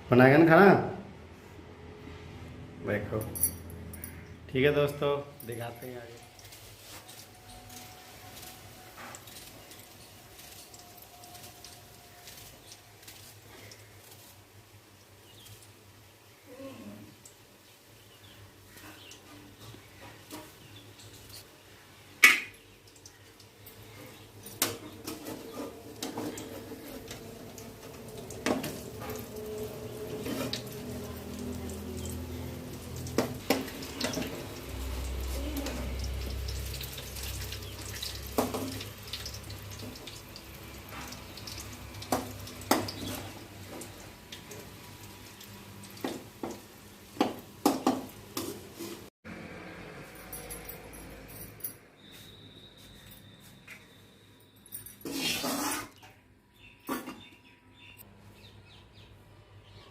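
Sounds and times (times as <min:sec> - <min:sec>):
tap water running into sink: 0:27.1 - 0:44.8
dishes and utensils clinking: 0:56.8 - 0:57.3.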